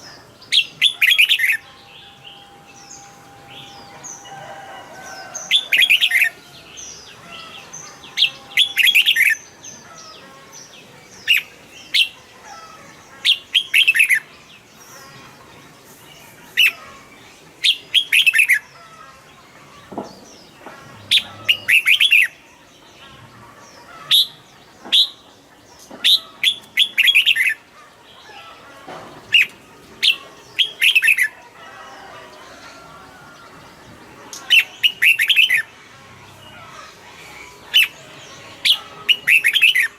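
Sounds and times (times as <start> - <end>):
bulbul singing warbled phrases: 5.1 - 15.3, 33.8 - 39.9.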